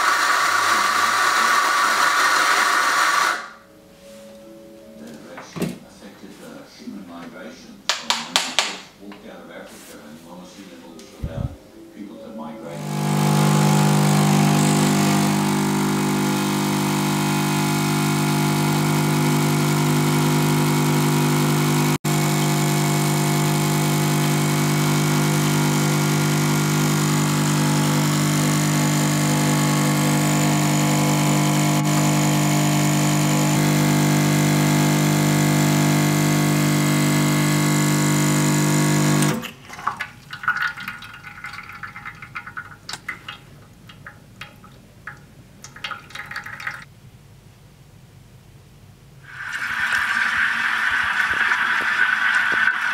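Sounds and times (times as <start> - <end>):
espresso machine pump humming: 0.0 - 3.4, 12.7 - 39.4, 49.3 - 52.9.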